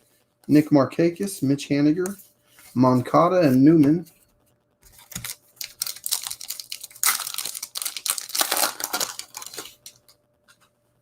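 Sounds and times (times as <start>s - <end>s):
wrapper torn and crinkled: 5.0s - 10.1s.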